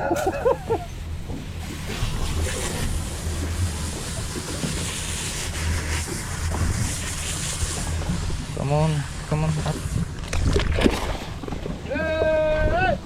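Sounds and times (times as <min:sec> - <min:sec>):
boat engine humming: 0:00.0 - 0:13.0
sea wash: 0:00.0 - 0:13.0
wind on microphone: 0:00.0 - 0:13.0.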